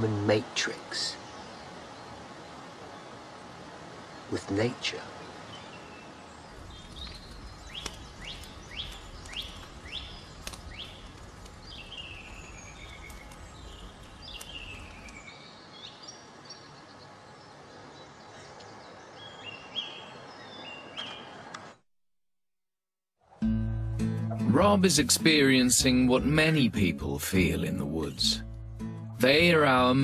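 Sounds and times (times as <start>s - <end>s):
birds singing: 0.0s - 21.7s.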